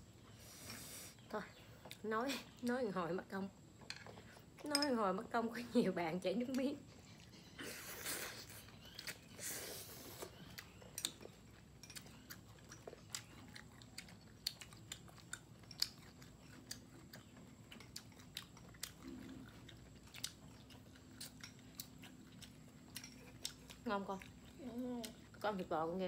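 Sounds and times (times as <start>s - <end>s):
close chewing crunches: 6.4s - 26.0s.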